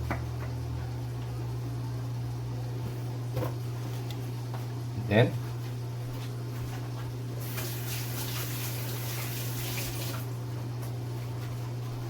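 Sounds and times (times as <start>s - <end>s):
low electrical hum: 0.0s - 12.0s
water running from a tap: 7.4s - 10.4s.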